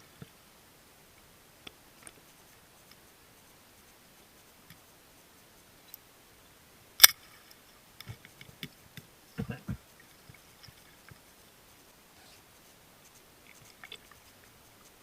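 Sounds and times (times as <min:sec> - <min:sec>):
faint clicks and knocks: 0:07.0 - 0:11.9, 0:13.0 - 0:15.0.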